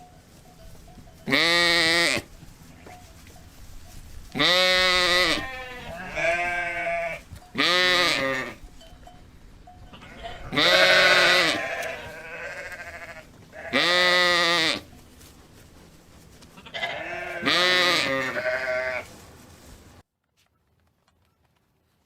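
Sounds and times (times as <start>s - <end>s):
sheep bleating: 4.4s - 8.6s, 9.9s - 14.9s, 16.6s - 19.1s.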